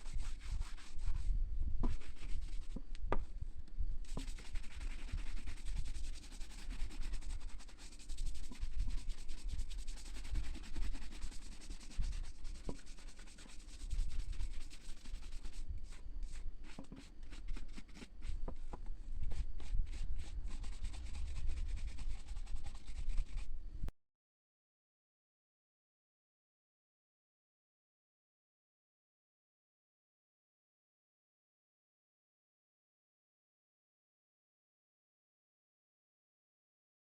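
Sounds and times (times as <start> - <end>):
scratchy rubbing on shoe: 0.0 - 2.9, 4.0 - 23.5.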